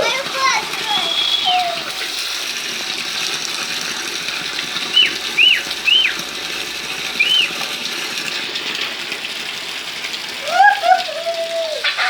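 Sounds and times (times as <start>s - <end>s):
rain and running water: 0.0s - 12.0s
short high chirps: 7.2s - 7.6s.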